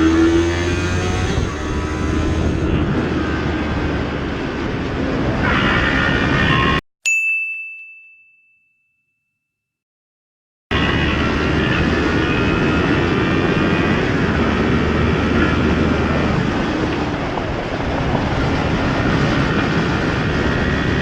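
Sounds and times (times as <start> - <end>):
motorcycle engine riding: 0.0 - 6.8, 10.7 - 21.0
wind: 0.0 - 8.0, 10.7 - 21.0
bell-like ding: 7.0 - 9.6.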